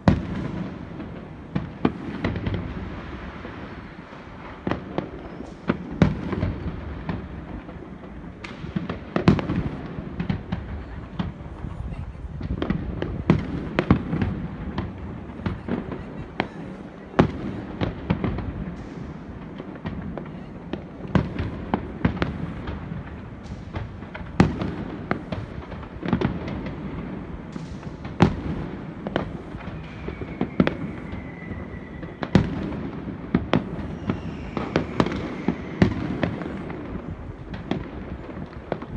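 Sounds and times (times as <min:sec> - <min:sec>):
firework bangs and cracks: 0:00.0 - 0:38.9
faint falling whistle: 0:29.6 - 0:32.8, 0:33.6 - 0:36.7.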